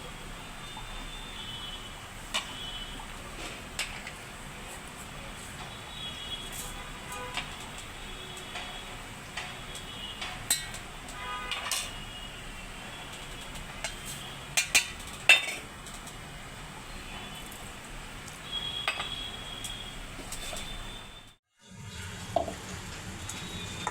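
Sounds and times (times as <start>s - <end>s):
metal utensils and dishes clinking: 6.4s - 12.1s, 13.0s - 16.2s, 18.8s - 19.2s, 20.2s - 20.9s.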